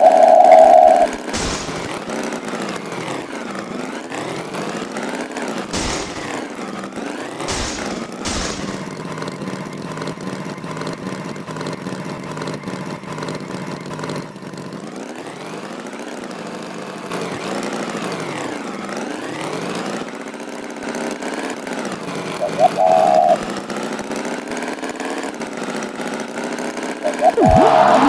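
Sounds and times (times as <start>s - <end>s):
tractor engine revving: 0.4s - 2.3s, 5.7s - 6.7s, 7.5s - 9.2s, 22.4s - 23.6s, 27.1s - 28.0s.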